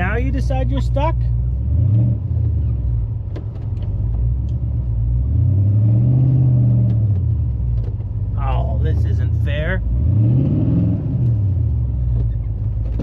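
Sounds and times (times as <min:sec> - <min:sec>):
truck engine revving under load: 0:01.0 - 0:03.1, 0:03.9 - 0:07.6, 0:08.6 - 0:13.0.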